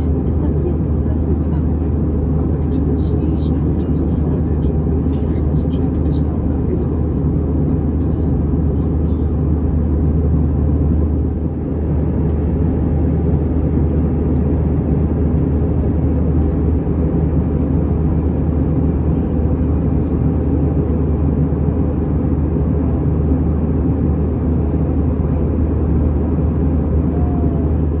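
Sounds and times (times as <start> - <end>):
jet engine drone: 0.0 - 28.0.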